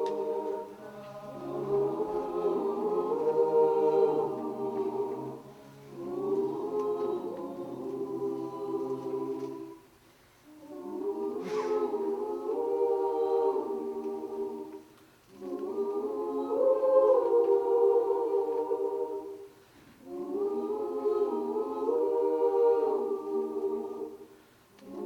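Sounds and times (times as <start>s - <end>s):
vocal ensemble singing a cappella: 0.0s - 25.0s.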